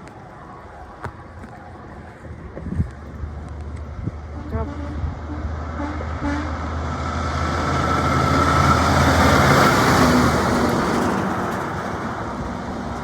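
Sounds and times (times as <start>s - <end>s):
truck driving past: 3.2s - 13.0s.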